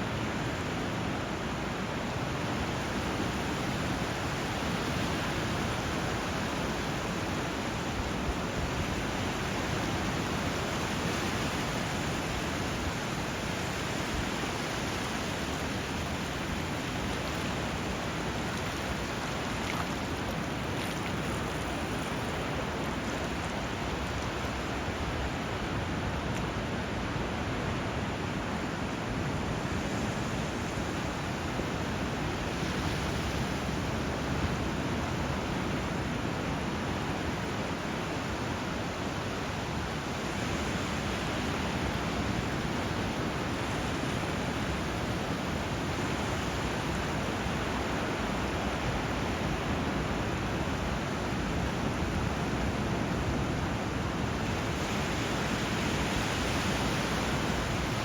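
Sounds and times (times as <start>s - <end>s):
flowing river water: 0.0s - 58.0s
sea surf: 0.0s - 58.0s.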